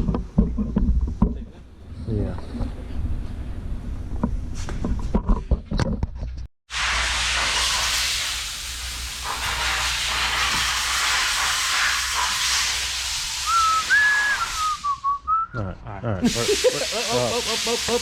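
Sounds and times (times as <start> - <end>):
air blowing out with hiss: 6.7 - 15.0, 16.2 - 18.0
wavering whistled tone: 13.4 - 15.5.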